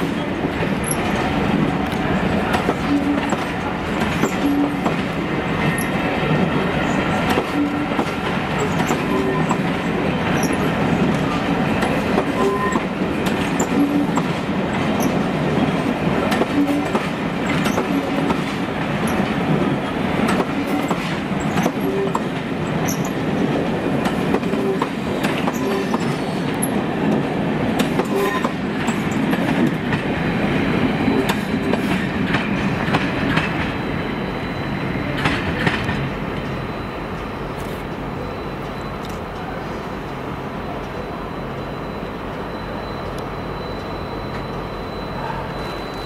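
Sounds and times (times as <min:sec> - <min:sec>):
train rolling rumble: 0:00.0 - 0:46.0
wheels clicking over rail joints: 0:07.3 - 0:19.6.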